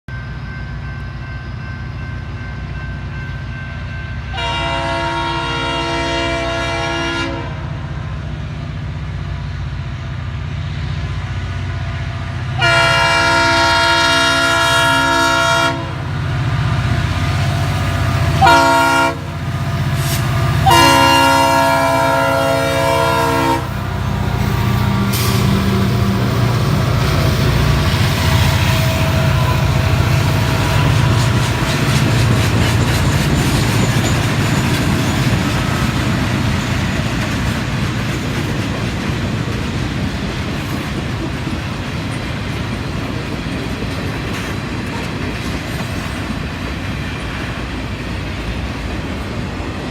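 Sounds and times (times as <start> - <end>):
train rumbling: 0.1 - 49.9
locomotive air horn blasts: 4.3 - 7.8, 12.6 - 16.1, 18.3 - 24.0.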